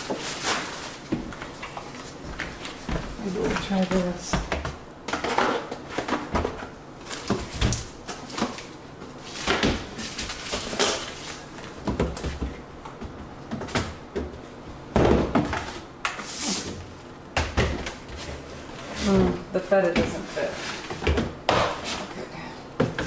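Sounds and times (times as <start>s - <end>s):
packages thumping: 2.2s - 15.8s.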